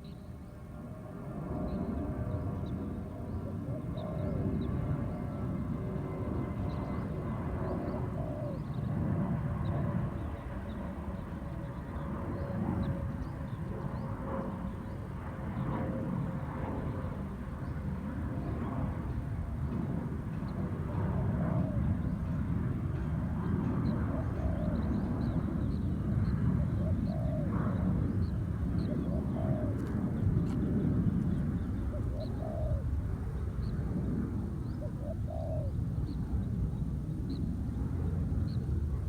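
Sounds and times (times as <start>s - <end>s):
doves cooing: 7.8s - 8.8s, 21.5s - 21.9s, 23.9s - 25.2s, 26.5s - 30.7s, 31.6s - 33.4s, 34.7s - 36.1s.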